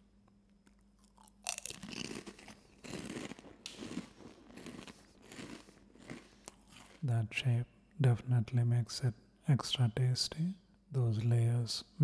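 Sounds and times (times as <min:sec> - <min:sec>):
chewing crunches: 0:00.6 - 0:07.0
person crunching corn snack: 0:00.6 - 0:07.0.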